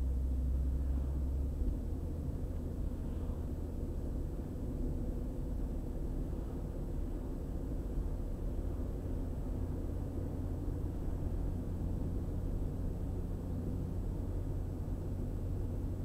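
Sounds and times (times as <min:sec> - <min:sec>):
car driving at highway speed: 0:00.0 - 0:16.0.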